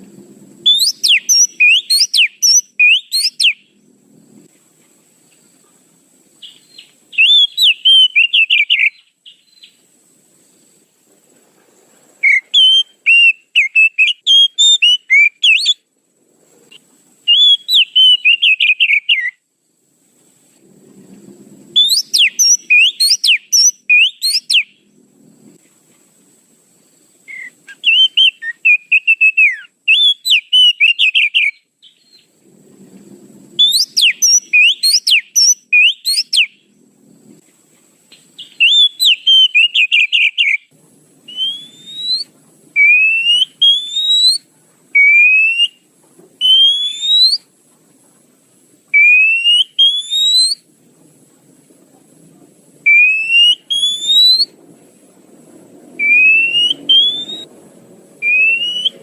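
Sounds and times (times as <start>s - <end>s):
bird rising whistle: 0.6s - 3.8s, 6.4s - 9.8s, 12.2s - 15.8s, 17.3s - 19.4s, 21.6s - 25.0s, 27.2s - 32.3s, 33.6s - 36.7s, 38.4s - 47.5s, 49.0s - 50.6s, 52.8s - 54.6s, 56.0s - 57.6s, 58.2s - 59.0s
bird chattering notes: 0.7s - 3.6s.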